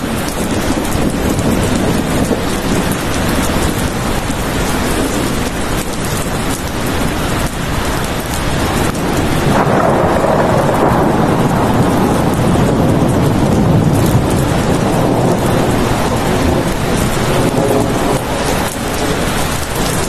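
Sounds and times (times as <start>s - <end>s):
steady rainfall: 0.0s - 20.0s.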